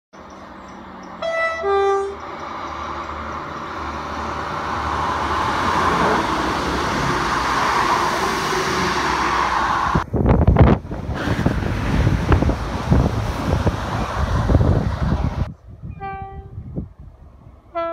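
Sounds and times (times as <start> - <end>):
train engine and wheels on rails: 0.2 - 17.9
train two-tone horn: 1.2 - 2.2, 15.9 - 16.6.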